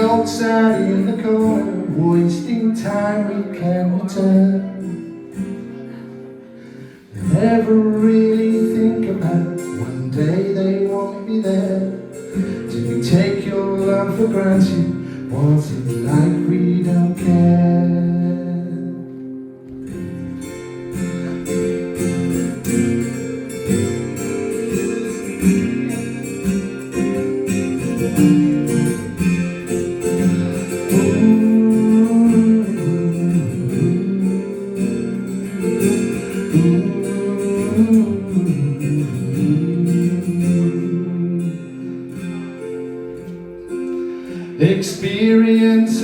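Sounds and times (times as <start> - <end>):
acoustic guitar: 0.0 - 46.0.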